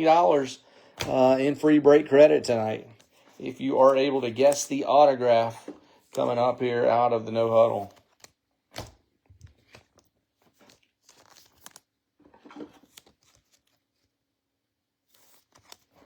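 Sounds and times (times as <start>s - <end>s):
cards sliding into plastic sleeves: 0.9s - 1.4s, 2.5s - 6.6s, 7.4s - 13.8s, 15.1s - 16.0s
plastic rustles: 7.4s - 14.1s.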